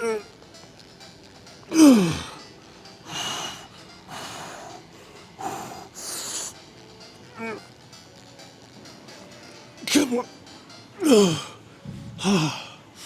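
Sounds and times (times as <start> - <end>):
man groaning with effort: 1.7 - 2.4, 11.0 - 12.8.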